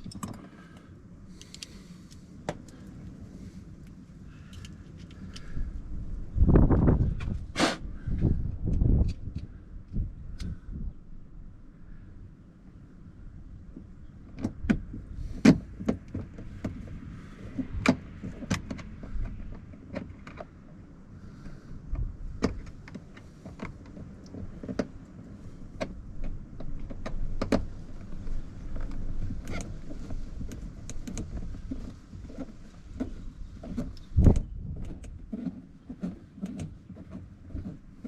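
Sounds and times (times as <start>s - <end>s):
low rumble: 1.9s - 12.2s
hands clicking on car door trim: 22.4s - 25.0s, 30.5s - 37.8s.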